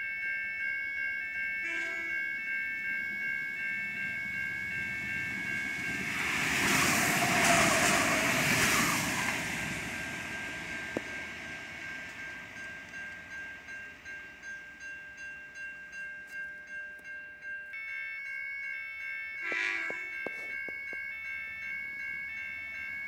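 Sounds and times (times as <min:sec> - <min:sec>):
diesel railcar passing: 0:00.0 - 0:23.0
level crossing warning bells: 0:00.0 - 0:23.0.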